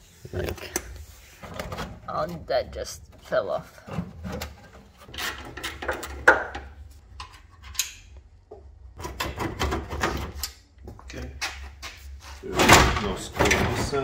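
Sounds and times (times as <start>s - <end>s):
car parts knocking and clattering: 3.8s - 7.8s, 8.5s - 10.4s, 12.5s - 14.0s.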